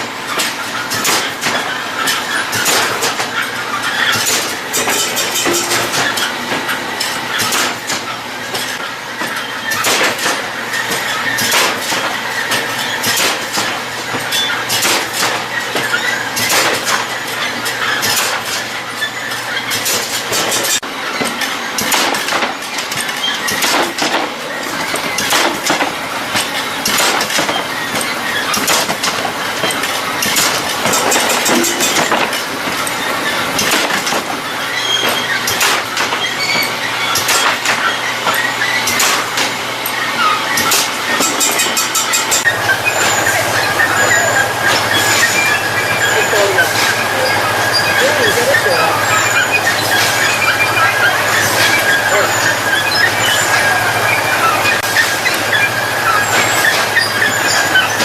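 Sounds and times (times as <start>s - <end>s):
machinery humming: 38.1s - 58.0s.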